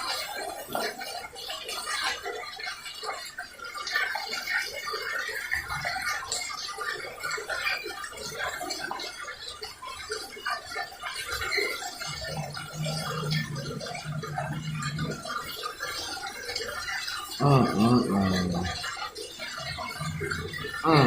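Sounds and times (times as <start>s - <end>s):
toilet water running: 0.0s - 21.0s.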